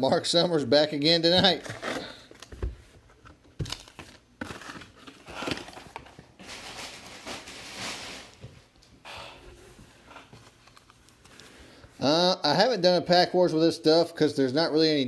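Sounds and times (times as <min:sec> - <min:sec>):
card wrappers crinkling and tearing: 0:03.6 - 0:08.5.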